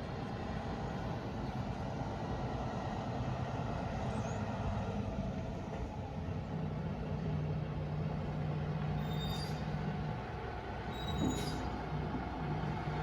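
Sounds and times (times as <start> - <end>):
faint high squeaks: 9.0 - 9.7, 10.9 - 11.8.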